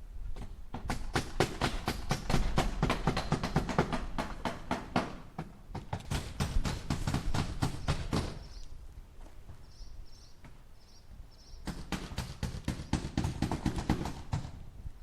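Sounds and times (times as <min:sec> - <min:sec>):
hammer striking nails into wood: 0:00.4 - 0:08.4, 0:11.7 - 0:14.6.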